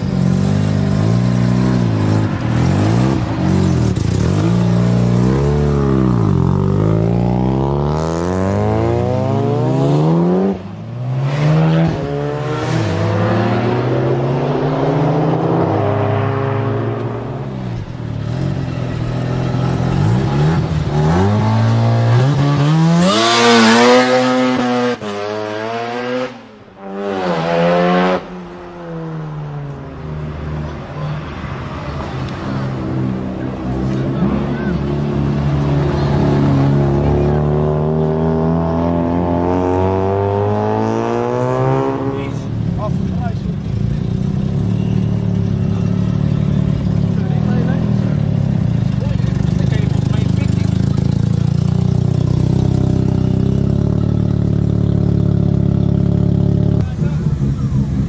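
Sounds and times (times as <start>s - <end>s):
rotary engine revving hard: 0.0s - 17.5s, 18.3s - 28.3s.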